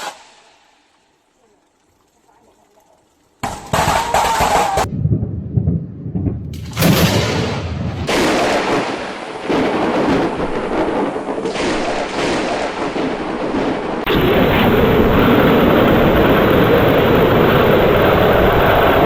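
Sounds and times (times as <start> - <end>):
thunder rumbling: 4.6 - 19.0
loud thunder crack: 4.7 - 19.0.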